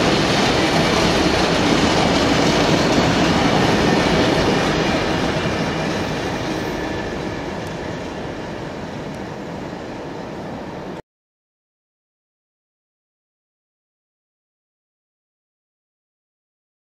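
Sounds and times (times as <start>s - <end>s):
freight train wheels on rails: 0.0s - 11.0s.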